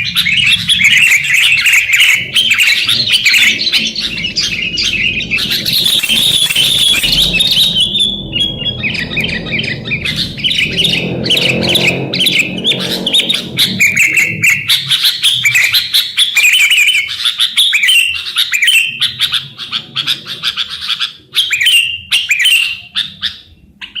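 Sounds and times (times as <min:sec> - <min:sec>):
low rumble: 0:00.0 - 0:16.0
bulbuls chirping and calling: 0:00.0 - 0:24.0.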